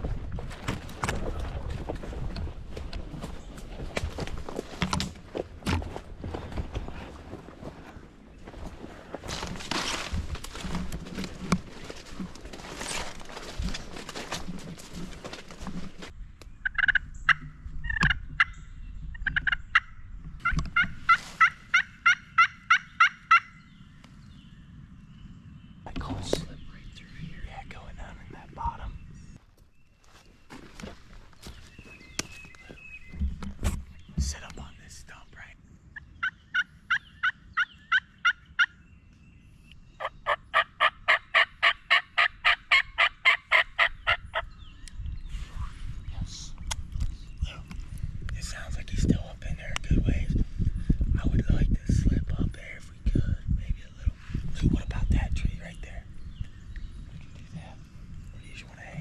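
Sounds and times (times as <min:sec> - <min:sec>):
turkey yelping: 0:16.6 - 0:18.6, 0:19.3 - 0:23.5, 0:36.2 - 0:38.7, 0:40.0 - 0:44.4.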